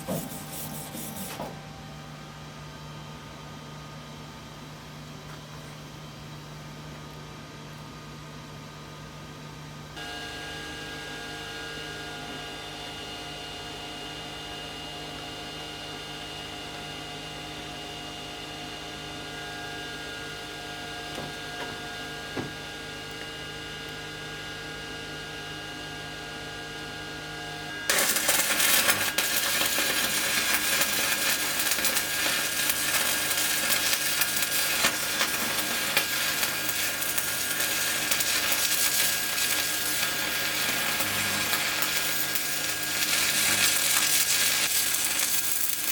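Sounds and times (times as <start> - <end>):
welding arc crackling hiss: 0.0 - 1.4, 27.9 - 45.9
welding machine electrical hum: 0.0 - 45.9.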